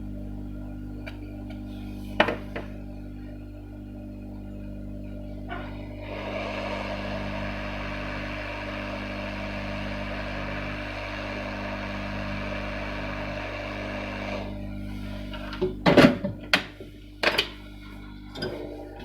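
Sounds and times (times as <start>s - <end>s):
low electrical hum: 0.0s - 19.0s
hot-air blower rushing: 5.3s - 19.0s.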